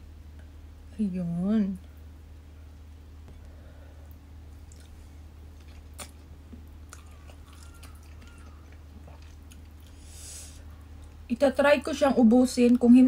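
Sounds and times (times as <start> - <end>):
steady low hum: 0.0 - 13.0
person chewing noodles: 4.1 - 11.2
small mouth clicks: 5.6 - 10.0.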